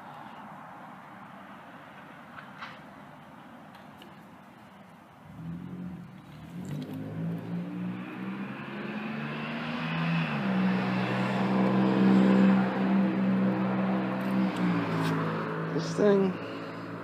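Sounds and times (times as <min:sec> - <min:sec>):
vehicle engine approaching: 0:05.2 - 0:17.0.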